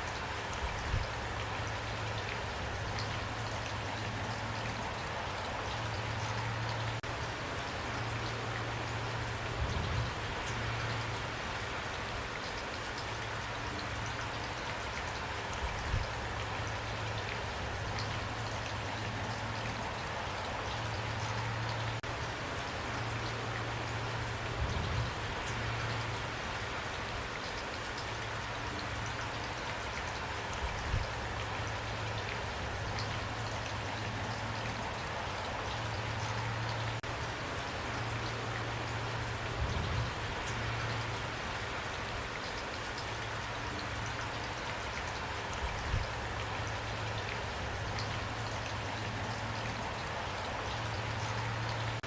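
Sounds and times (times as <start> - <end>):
rain patter: 0.0 - 52.0.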